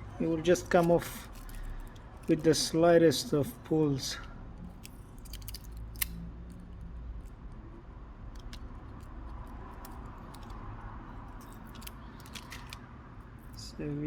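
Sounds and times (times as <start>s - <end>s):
low background hum: 0.0s - 14.0s
small tools clicking and tapping: 4.6s - 7.4s, 8.3s - 12.8s.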